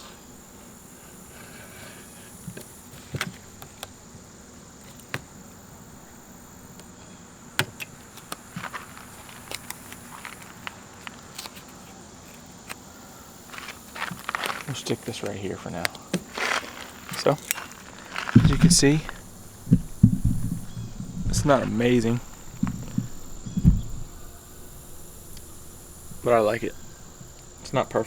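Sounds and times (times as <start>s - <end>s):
high insect drone: 0.0s - 28.0s
taps and clicks of foam padding: 4.8s - 5.4s, 7.6s - 24.3s.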